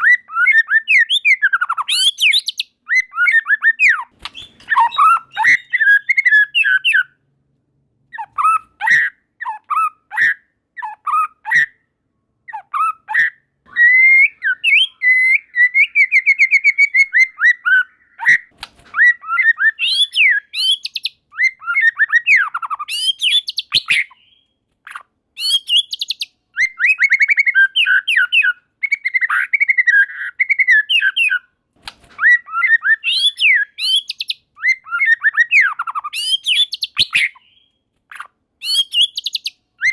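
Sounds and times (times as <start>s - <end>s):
bird singing whistled phrases: 0.0s - 7.1s, 12.8s - 24.4s, 25.4s - 31.5s, 32.2s - 37.7s, 38.6s - 39.9s.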